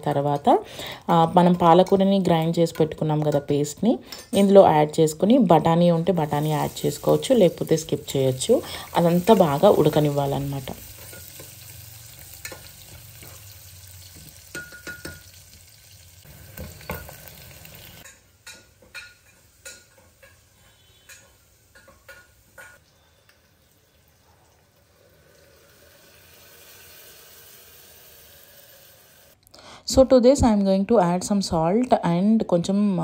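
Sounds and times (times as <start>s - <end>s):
onions sizzling in ghee: 5.8s - 29.4s.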